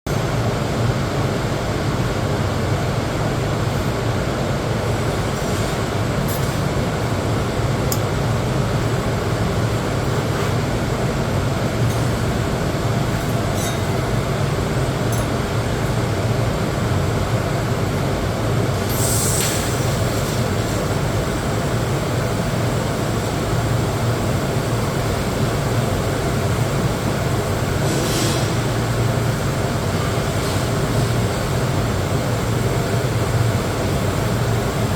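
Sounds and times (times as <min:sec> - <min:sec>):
welding arc hum and hiss: 0:00.1 - 0:34.9
welding crackles: 0:18.8 - 0:21.3.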